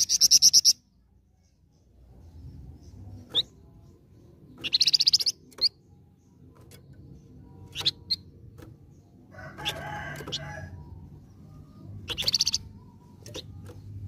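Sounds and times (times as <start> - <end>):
bird rapid trill: 4.6 - 5.8, 12.0 - 13.6.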